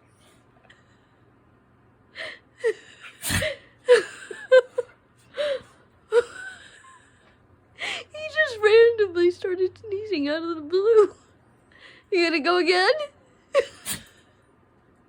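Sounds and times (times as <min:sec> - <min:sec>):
dog sneezing: 0:03.0 - 0:03.7, 0:13.6 - 0:14.3.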